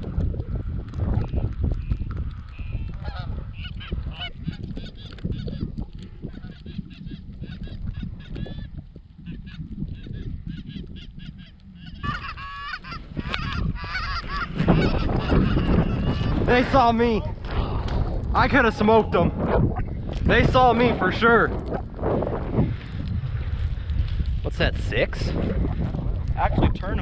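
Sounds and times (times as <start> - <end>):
goose honks and clucks: 2.6 - 5.6, 6.3 - 8.6, 9.2 - 16.4
low rumble: 11.2 - 27.0.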